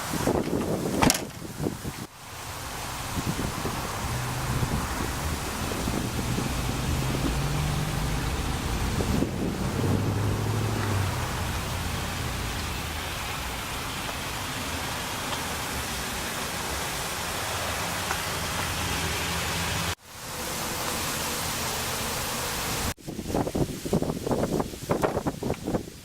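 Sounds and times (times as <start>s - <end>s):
loud uneven sounds: 0.0s - 22.9s
steady rushing hiss: 0.0s - 26.0s
low hum: 2.4s - 14.8s.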